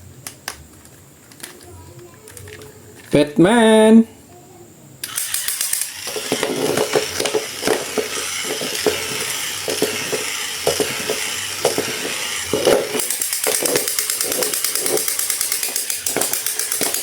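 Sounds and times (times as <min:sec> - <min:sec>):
small hard objects rattling: 0:05.1 - 0:17.0.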